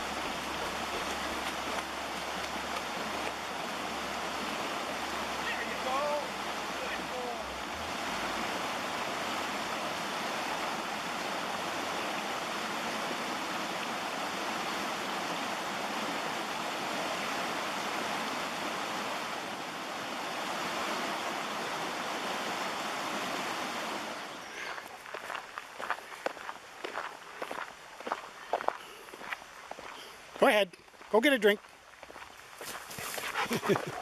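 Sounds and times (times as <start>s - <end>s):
stream water rushing: 0.0s - 30.6s, 31.6s - 34.0s
footsteps: 32.0s - 34.0s.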